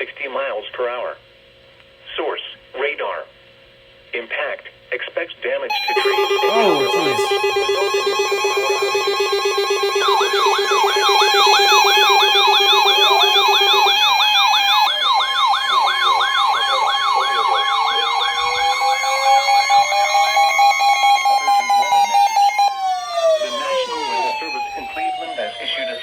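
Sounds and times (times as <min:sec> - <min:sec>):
fast warbling siren: 0:05.7 - 0:26.0
slowly rising siren tone: 0:05.7 - 0:26.0
steady electronic alert tones: 0:05.7 - 0:26.0.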